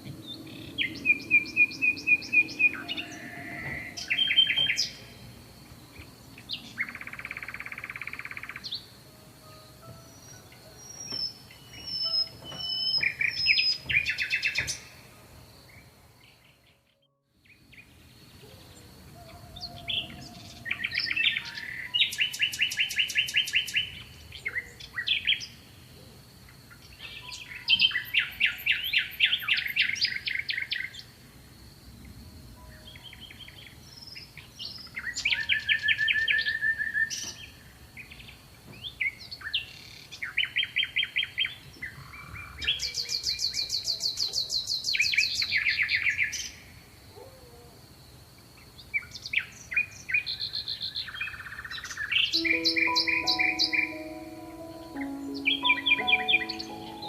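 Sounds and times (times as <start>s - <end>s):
songbirds trilling: 0.0s - 15.1s, 17.5s - 25.7s, 48.8s - 57.0s
faint high-pitched steady note: 8.8s - 13.2s, 52.4s - 57.0s.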